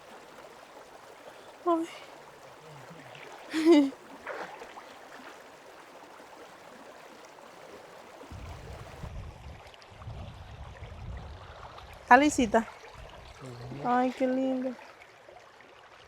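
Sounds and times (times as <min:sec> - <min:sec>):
river water flowing: 0:00.0 - 0:16.0.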